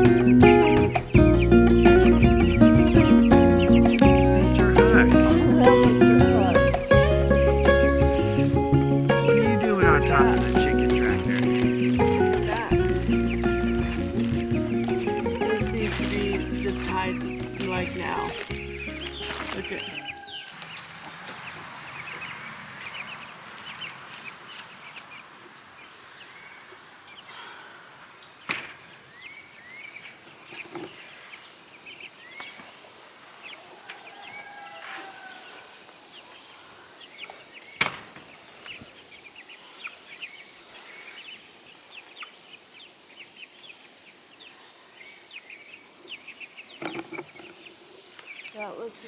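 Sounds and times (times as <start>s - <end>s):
chicks peeping: 0.0s - 28.5s
steady outdoor hiss: 0.0s - 49.0s
wild birds calling: 0.0s - 49.0s.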